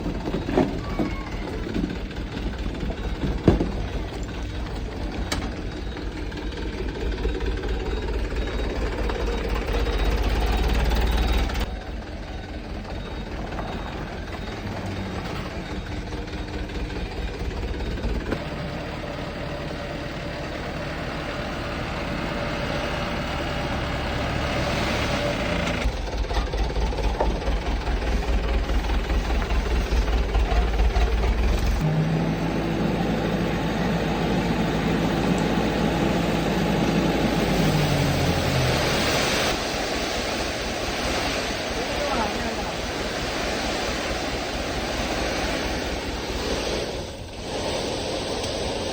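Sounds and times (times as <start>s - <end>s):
diesel engine rumbling: 0.0s - 48.9s.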